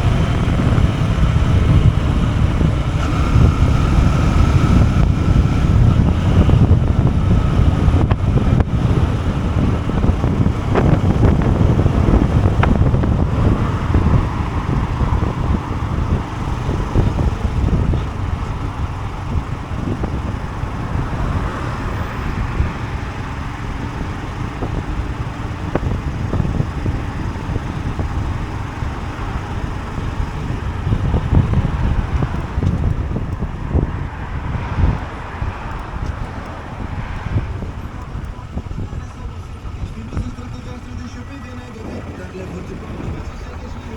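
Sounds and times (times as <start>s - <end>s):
motorcycle engine running: 0.0s - 43.9s
wind buffeting microphone: 0.0s - 43.9s.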